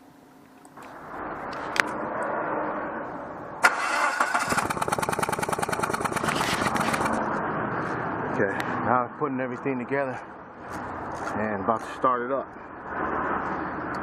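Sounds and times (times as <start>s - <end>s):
car engine cranking and starting: 3.6s - 7.2s
fast even engine pulsing: 3.6s - 7.3s.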